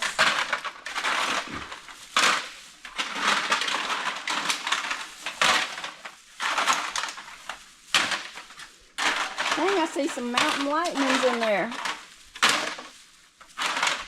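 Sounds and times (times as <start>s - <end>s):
aluminum cans crinkling and clattering: 0.0s - 14.0s.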